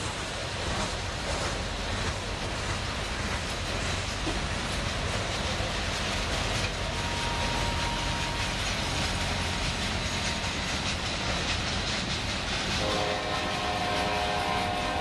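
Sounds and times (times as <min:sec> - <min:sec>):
freight train wheels clattering on rails: 0:00.0 - 0:15.0
train horn chord: 0:06.9 - 0:08.4, 0:12.8 - 0:15.0.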